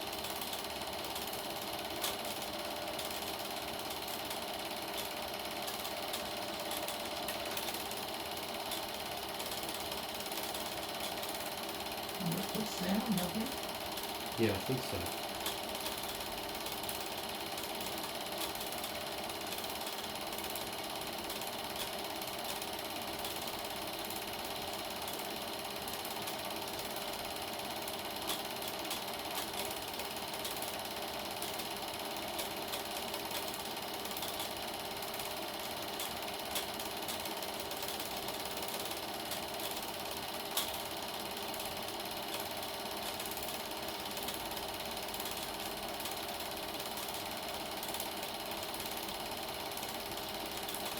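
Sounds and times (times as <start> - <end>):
film projector clattering: 0.0 - 50.9.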